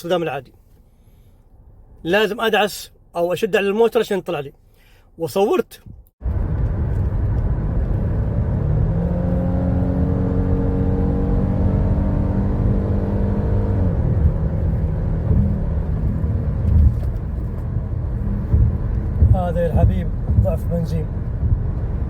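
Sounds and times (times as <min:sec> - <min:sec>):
road rumble: 0:00.0 - 0:22.0
car engine accelerating: 0:06.2 - 0:22.0.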